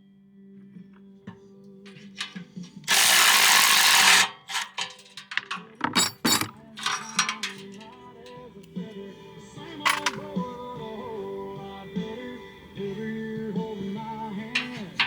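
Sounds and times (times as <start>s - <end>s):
background music: 0.0s - 15.0s
tools clicking and clanking: 1.9s - 8.0s, 9.9s - 10.3s, 14.5s - 15.0s
cordless impact wrench running: 2.8s - 4.8s.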